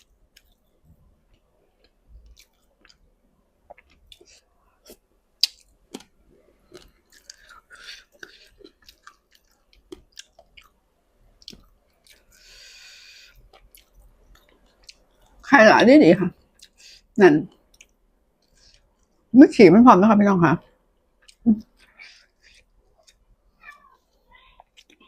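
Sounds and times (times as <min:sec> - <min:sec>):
person chewing wetly: 0:01.3 - 0:03.1, 0:03.7 - 0:10.8, 0:11.4 - 0:15.4, 0:16.5 - 0:19.3, 0:21.2 - 0:25.0.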